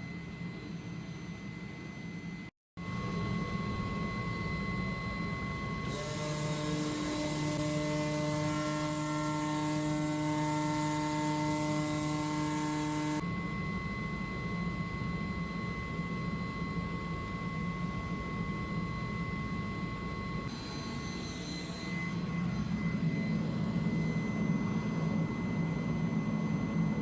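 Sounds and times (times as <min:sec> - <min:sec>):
machine hum and high whine: 0:00.0 - 0:27.0
pneumatic oscillating tool buzzing: 0:05.8 - 0:13.2.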